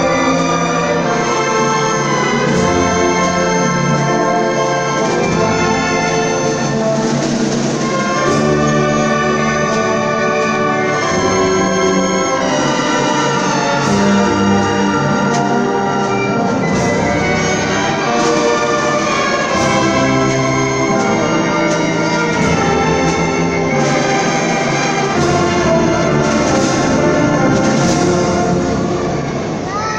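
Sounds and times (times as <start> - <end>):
brass chords: 0.0 - 29.7
orchestra playing: 0.0 - 29.9.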